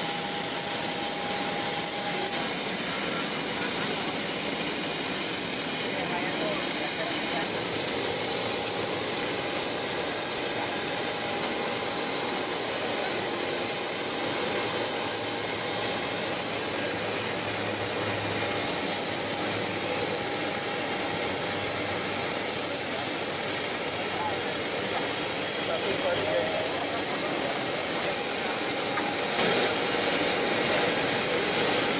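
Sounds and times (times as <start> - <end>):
jet turbine running: 0.0 - 31.9.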